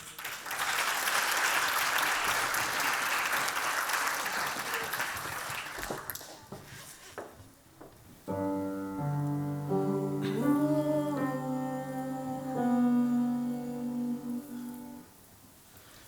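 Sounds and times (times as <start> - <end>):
audience applause: 0.0 - 6.4.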